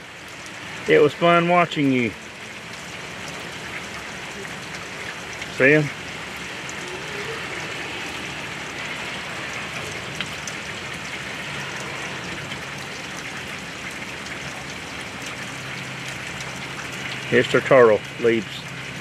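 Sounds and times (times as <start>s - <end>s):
steady rain pouring: 0.0s - 19.0s
drops ticking close by: 8.4s - 19.0s.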